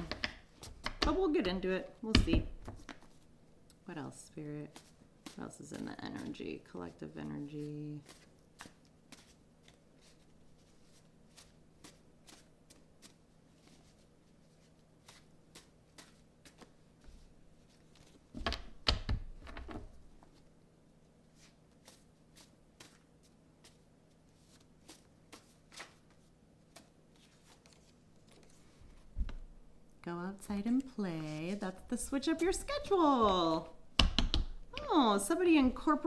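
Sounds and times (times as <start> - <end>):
cards being shuffled: 4.7 - 20.4, 21.4 - 29.4.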